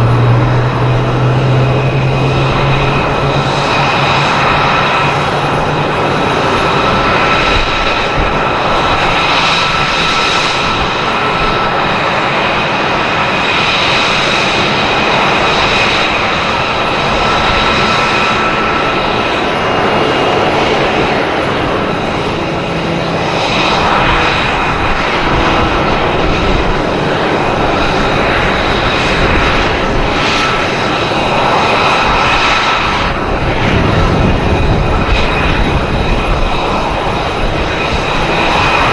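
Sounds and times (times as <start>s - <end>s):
jet engines roaring: 0.0s - 38.9s.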